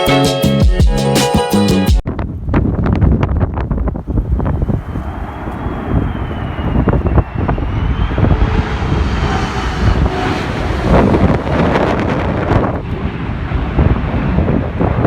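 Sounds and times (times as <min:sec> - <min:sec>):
wind buffeting microphone: 0:02.0 - 0:15.0
aircraft engine whine: 0:02.2 - 0:15.0
broad rushing noise: 0:03.6 - 0:15.0.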